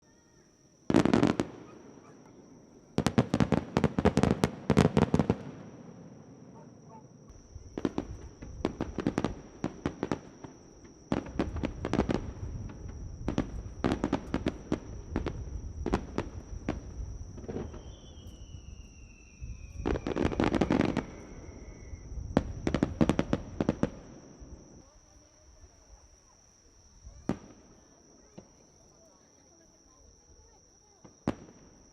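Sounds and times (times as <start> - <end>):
fireworks crackling: 0.9 - 2.3, 3.0 - 6.3, 7.3 - 24.8
firework whistle: 15.9 - 23.8.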